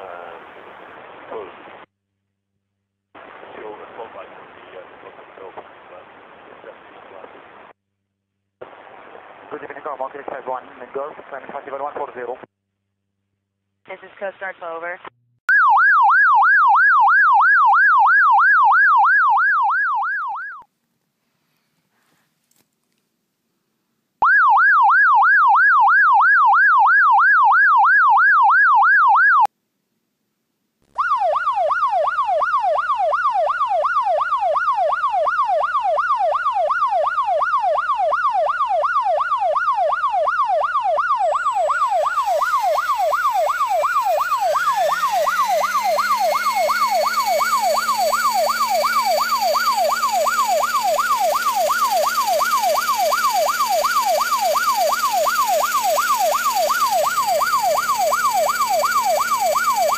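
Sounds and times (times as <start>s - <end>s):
electronic yelp siren: 15.5s - 20.7s, 24.2s - 29.5s, 31.0s - 59.9s.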